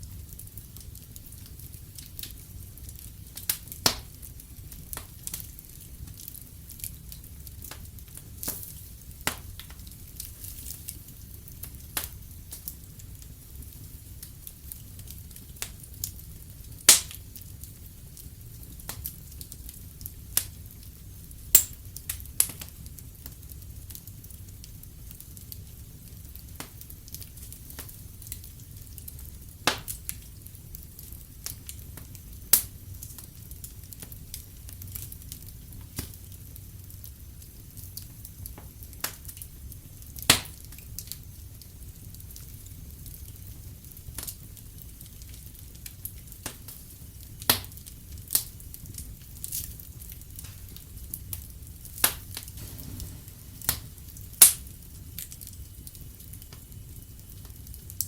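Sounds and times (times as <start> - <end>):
low fire rumble: 0.0 - 58.0
wood fire crackling and popping: 0.0 - 58.0.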